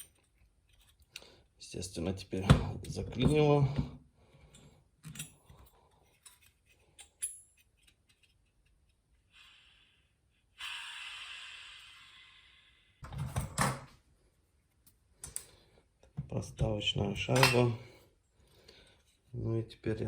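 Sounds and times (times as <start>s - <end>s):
hiss: 9.3s - 13.0s.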